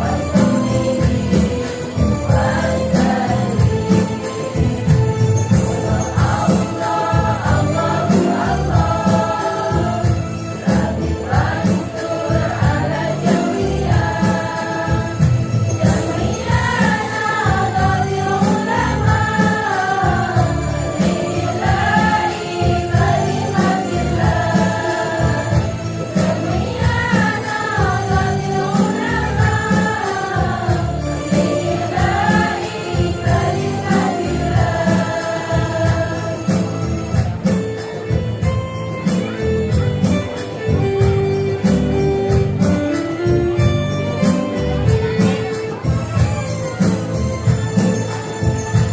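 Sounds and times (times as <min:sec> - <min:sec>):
women's choir singing: 0:00.0 - 0:37.4
jingling percussion: 0:00.0 - 0:48.9
rhythmic drum: 0:00.0 - 0:48.9.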